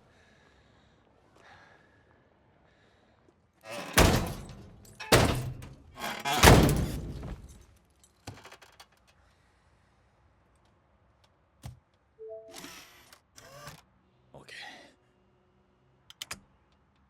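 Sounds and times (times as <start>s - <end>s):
heavy thuds: 3.7s - 7.6s.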